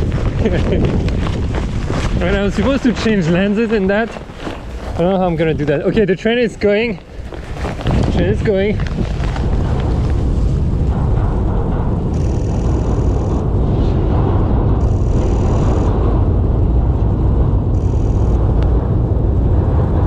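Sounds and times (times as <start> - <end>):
train rumbling past: 9.4 - 20.0.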